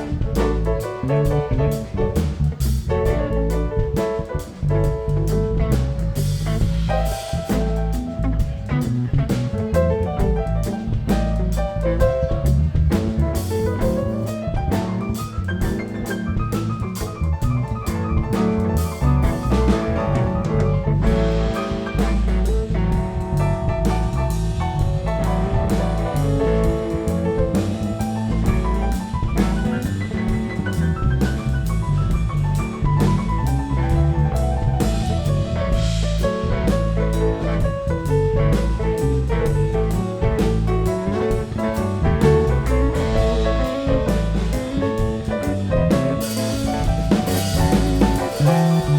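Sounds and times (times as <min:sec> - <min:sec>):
bass: 0:00.0 - 0:48.9
drum kit: 0:00.0 - 0:48.9
live rock band instrumental: 0:00.0 - 0:48.9
melodic lead line: 0:39.6 - 0:48.9.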